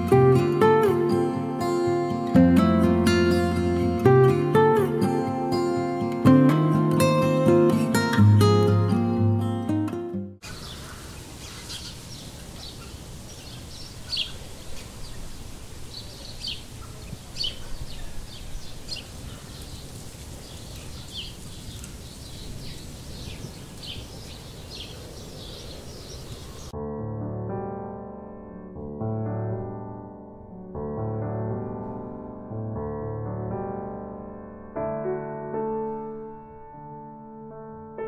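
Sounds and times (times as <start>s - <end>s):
acoustic guitar music: 0.0s - 10.4s
birds chirping: 10.4s - 26.7s.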